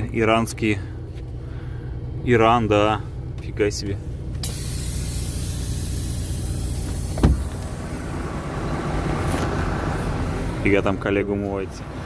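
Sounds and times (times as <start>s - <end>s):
diesel engine idling: 0.0s - 12.0s
loud hiss: 4.4s - 7.8s.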